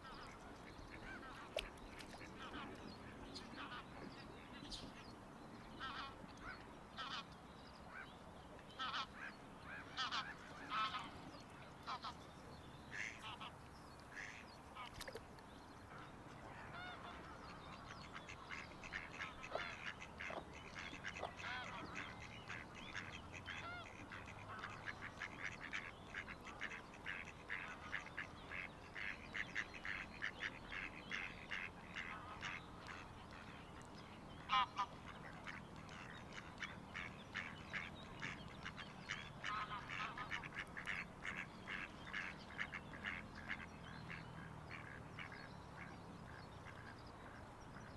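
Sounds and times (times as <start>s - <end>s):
waterbirds calling: 0.0s - 47.9s.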